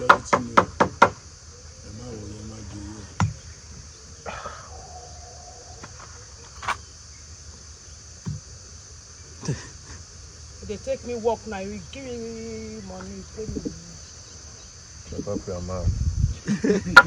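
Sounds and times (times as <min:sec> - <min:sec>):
sharp knocks: 0:00.0 - 0:01.2, 0:03.2 - 0:03.9, 0:08.2 - 0:08.5
insects chirring: 0:00.0 - 0:17.0
faint voices: 0:01.6 - 0:05.8, 0:10.6 - 0:14.3.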